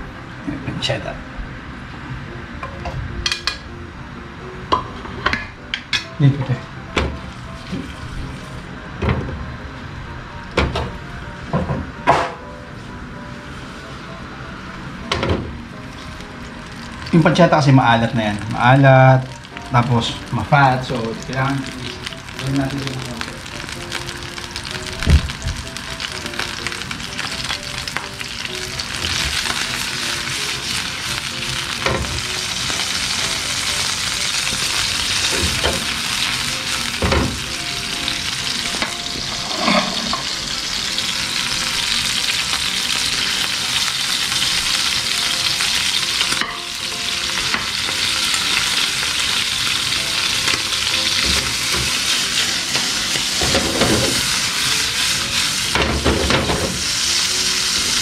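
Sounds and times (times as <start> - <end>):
meat sizzling in oil: 15.6 - 58.0.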